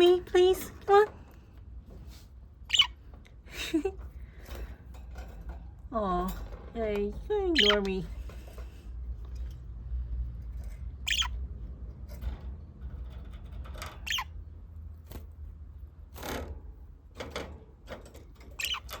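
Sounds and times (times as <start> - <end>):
budgerigars chirping: 2.7 - 3.0, 7.6 - 7.9, 11.0 - 11.4, 14.0 - 14.3, 18.6 - 19.0.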